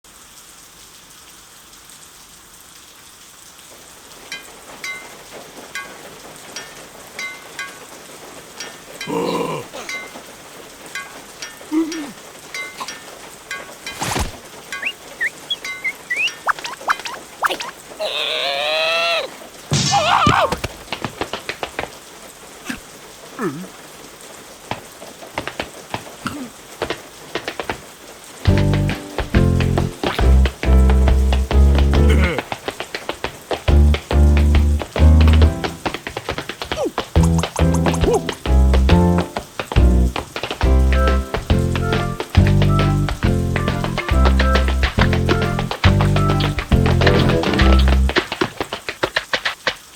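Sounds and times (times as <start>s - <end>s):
steady rain hiss: 0.0s - 49.9s
high-pitched drip plinks: 4.3s - 5.2s, 6.6s - 7.8s, 10.9s - 14.0s, 14.7s - 17.8s
gliding vocal squeaks: 14.0s - 19.3s.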